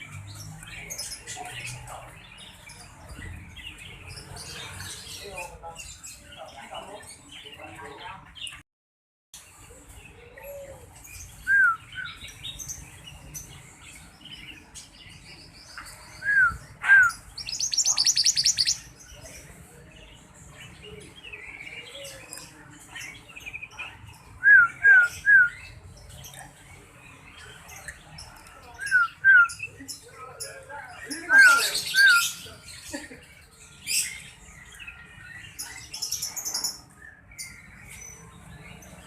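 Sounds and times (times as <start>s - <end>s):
bird whistled calls: 16.2s - 18.8s
high rattling bird trill: 17.1s - 18.9s.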